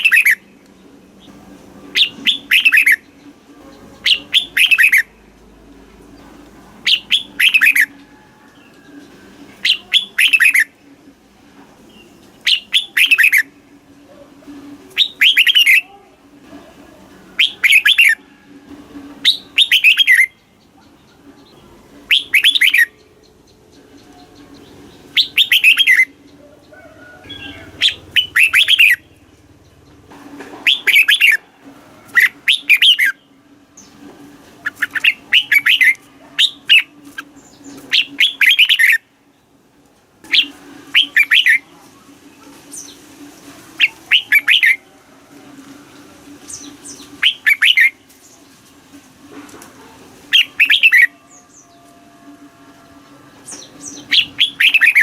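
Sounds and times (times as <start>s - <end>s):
bird singing warbling phrases: 0.0s - 0.5s, 1.2s - 3.2s, 3.8s - 5.3s, 6.8s - 7.9s, 9.6s - 10.8s, 11.9s - 13.6s, 14.9s - 15.9s, 17.4s - 18.2s, 19.2s - 29.9s, 30.6s - 31.4s, 32.1s - 34.0s, 34.6s - 39.1s, 40.3s - 41.7s, 43.8s - 44.9s, 46.5s - 48.1s, 50.3s - 51.9s, 53.4s - 55.0s.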